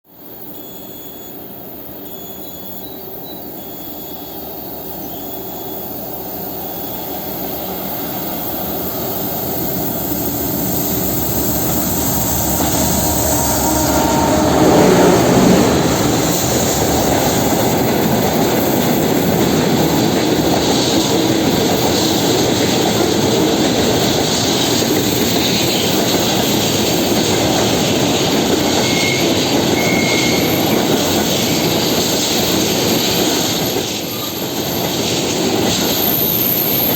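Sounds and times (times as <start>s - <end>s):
diesel locomotive engine: 0.3s - 36.9s
wheel squeal: 0.4s - 1.4s, 2.0s - 19.3s, 28.4s - 36.9s
train wagons rolling on rails: 0.6s - 36.9s.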